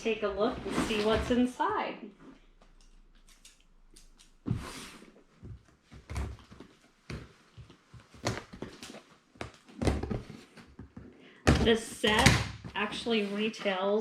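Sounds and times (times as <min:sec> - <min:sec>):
cardboard scraping: 0:00.5 - 0:01.5.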